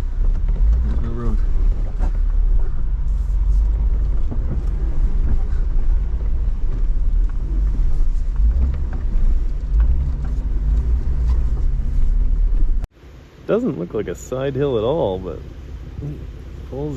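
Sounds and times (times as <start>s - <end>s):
engine and drivetrain rumble: 0.0s - 16.9s.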